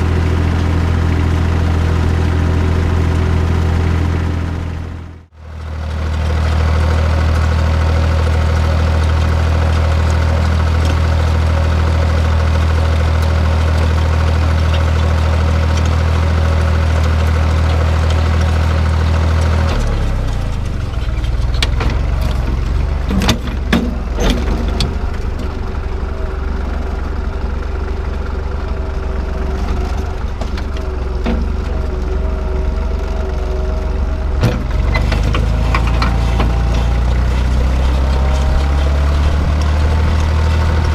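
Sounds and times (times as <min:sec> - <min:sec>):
tractor engine running: 0:00.0 - 0:40.9
knocks and clanks: 0:19.4 - 0:26.0, 0:29.5 - 0:33.7, 0:34.4 - 0:40.9.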